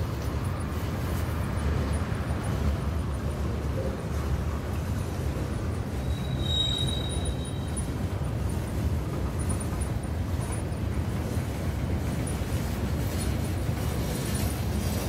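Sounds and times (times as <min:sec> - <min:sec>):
freight train wheels rumbling: 0:00.0 - 0:15.0
high-pitched wheel squeal: 0:06.0 - 0:07.9.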